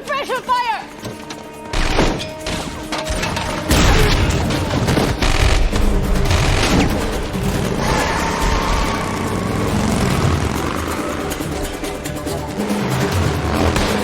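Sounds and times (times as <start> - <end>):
film score music: 0.0 - 14.0
gunfire bursts: 3.7 - 11.8.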